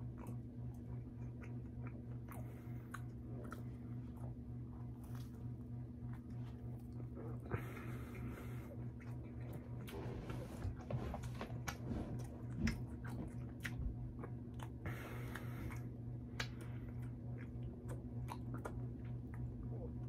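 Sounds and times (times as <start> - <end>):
low hum: 0.0 - 20.0
person chewing: 0.0 - 20.0.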